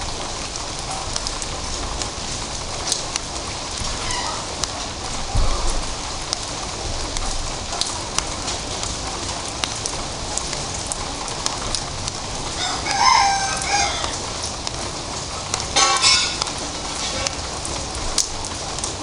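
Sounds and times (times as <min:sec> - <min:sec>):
light drizzle falling: 0:00.0 - 0:19.0
bird calling loudly: 0:04.0 - 0:04.5.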